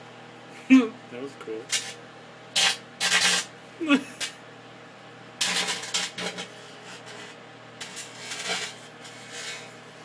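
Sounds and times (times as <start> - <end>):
microwave oven humming: 0.0 - 10.0
sparks crackling in microwave: 1.5 - 4.4, 5.3 - 10.0.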